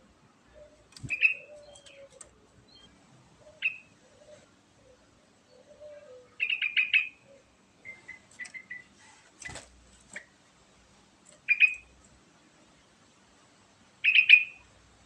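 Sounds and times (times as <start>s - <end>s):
bird chips: 0.9s - 2.3s.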